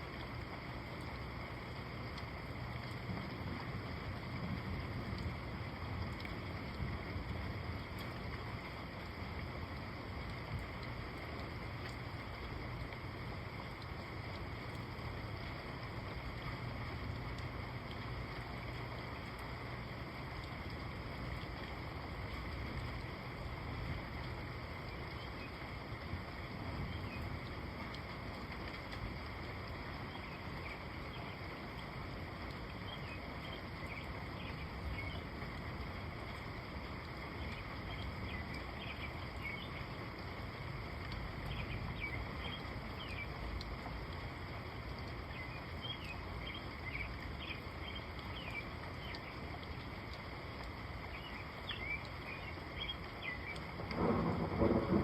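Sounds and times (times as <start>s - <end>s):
loud thunder: 53.9s - 55.0s.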